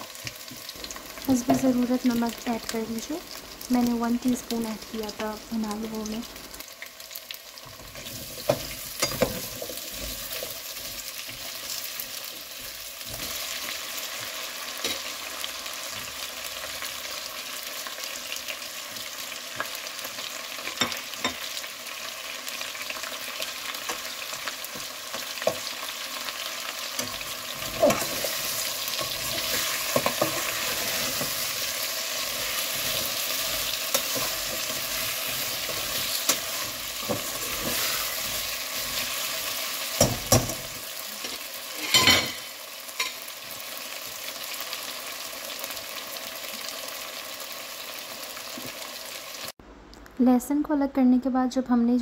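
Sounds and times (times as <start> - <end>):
potatoes sizzling in hot oil: 0.0 - 49.6.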